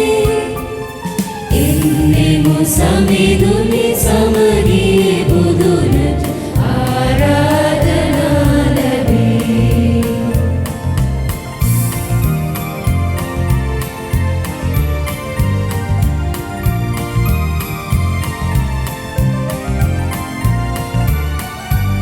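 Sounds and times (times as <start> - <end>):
choir singing a hymn: 0.0 - 11.8
instrumental accompaniment with bass beat: 1.1 - 22.0.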